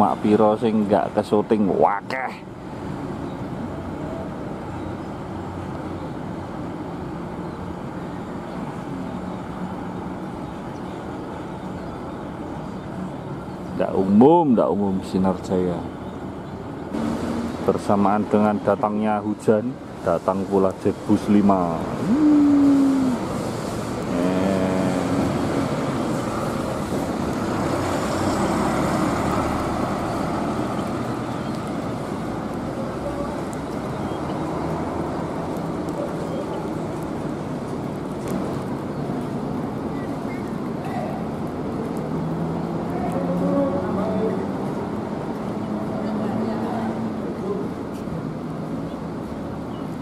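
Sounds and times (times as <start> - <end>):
heavy rain pouring: 16.9 - 50.0
bus engine droning: 21.6 - 31.4.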